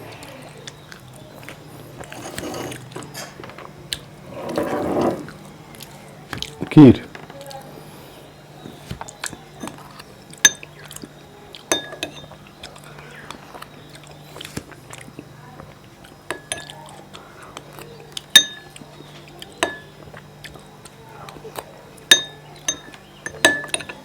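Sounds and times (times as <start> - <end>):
spoon clinking against bowl: 9.6 - 11.0, 11.6 - 12.6, 16.2 - 16.8, 18.3 - 20.2, 21.5 - 24.0.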